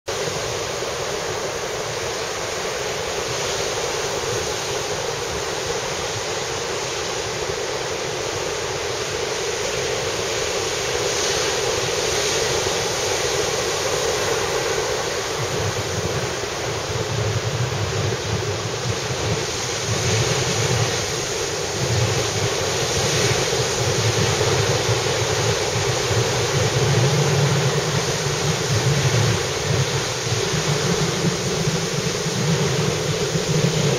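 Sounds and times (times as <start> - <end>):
wind buffeting microphone: 0.1 - 33.9
surf breaking on beach: 8.6 - 33.9.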